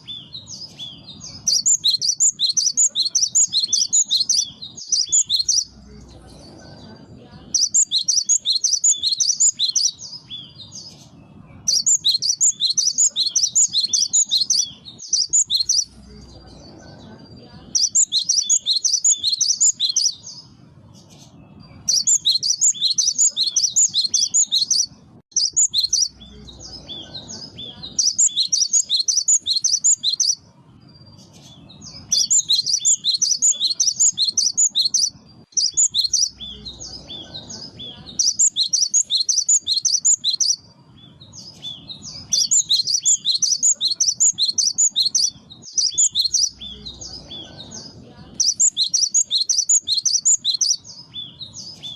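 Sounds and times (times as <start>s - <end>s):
faint low rumble: 0.0s - 38.8s
bird chattering song: 0.0s - 51.9s.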